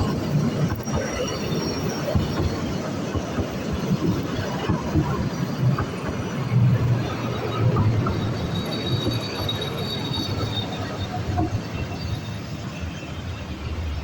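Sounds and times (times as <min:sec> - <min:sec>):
train rumbling on track: 0:00.0 - 0:14.0
wheels squealing: 0:06.2 - 0:14.0.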